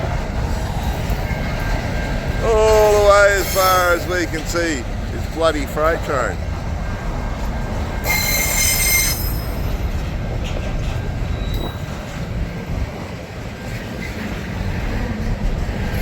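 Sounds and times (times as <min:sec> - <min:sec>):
freight train wagons rumbling: 0:00.0 - 0:16.0
high-pitched wheel squeal: 0:08.0 - 0:09.7, 0:11.3 - 0:12.0.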